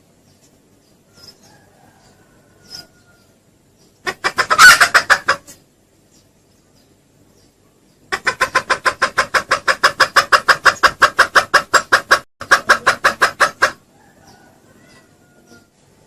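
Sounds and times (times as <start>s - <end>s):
junglefowl lure clucks: 4.0s - 5.6s, 8.1s - 14.4s.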